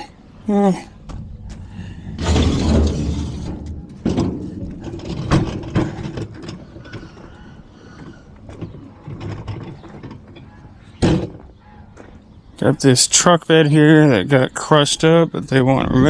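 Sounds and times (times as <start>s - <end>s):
heavy scraping rumble: 1.0s - 11.6s
mechanical clanking and rattling: 1.1s - 11.4s.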